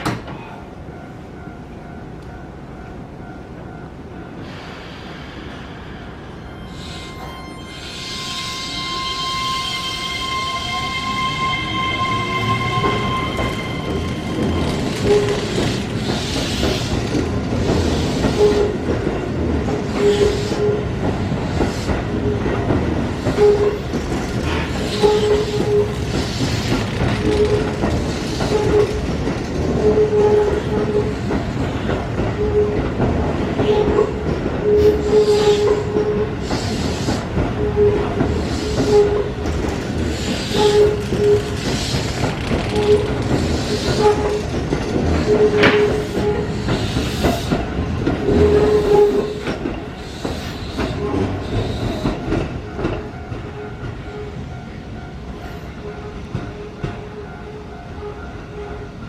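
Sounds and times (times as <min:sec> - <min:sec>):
electric train running past: 0:00.0 - 0:59.0
wheels clattering over rail joints: 0:22.6 - 0:35.4, 0:37.4 - 0:51.0.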